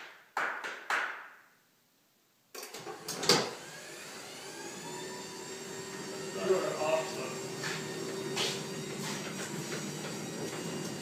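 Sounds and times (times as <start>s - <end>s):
hand claps: 0.0s - 1.4s
garage door opener running: 2.6s - 11.0s.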